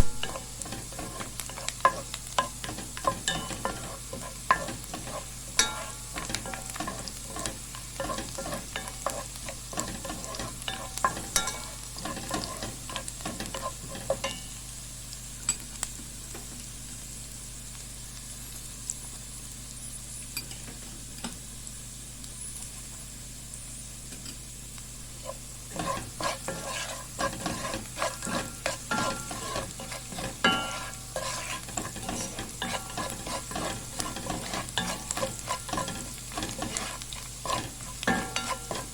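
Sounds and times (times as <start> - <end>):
utensil scraping and stirring: 0.0 - 14.4, 25.2 - 38.9
food sizzling in a pan: 0.0 - 38.9.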